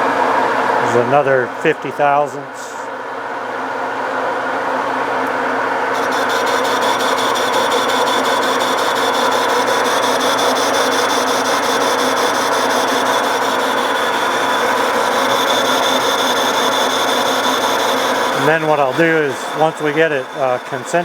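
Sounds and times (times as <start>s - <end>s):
metal lathe cutting: 5.8s - 21.0s
fast high ticking: 6.0s - 21.0s.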